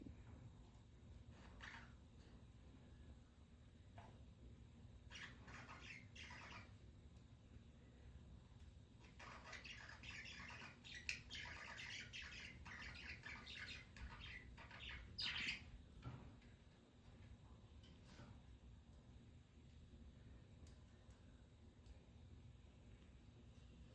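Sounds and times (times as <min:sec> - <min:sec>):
budgerigars chirping: 0:05.1 - 0:06.7, 0:09.0 - 0:15.7.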